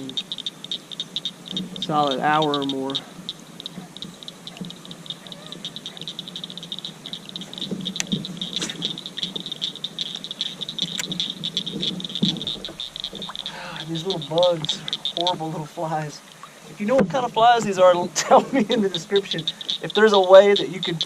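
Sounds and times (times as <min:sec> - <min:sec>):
sharp clicks: 0:00.0 - 0:15.6, 0:16.3 - 0:21.0
frogs trilling: 0:00.0 - 0:21.0.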